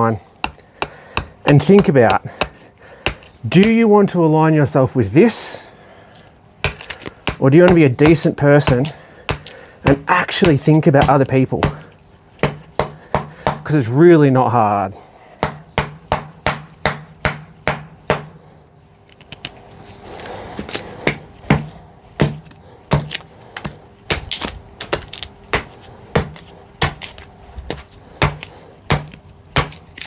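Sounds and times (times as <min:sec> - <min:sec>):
axe chopping wood: 0:00.0 - 0:03.8, 0:06.6 - 0:13.8, 0:15.4 - 0:18.4, 0:20.6 - 0:30.0.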